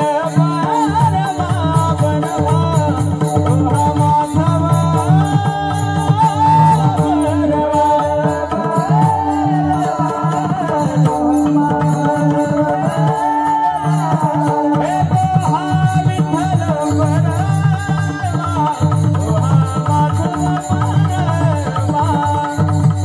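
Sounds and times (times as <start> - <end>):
jingling percussion beat: 0.0 - 23.0
person singing devotional song: 0.0 - 23.0.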